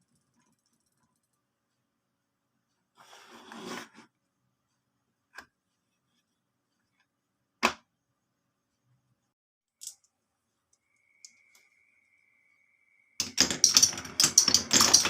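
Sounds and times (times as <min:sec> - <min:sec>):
marble clicking on wooden run: 0:13.2 - 0:15.0.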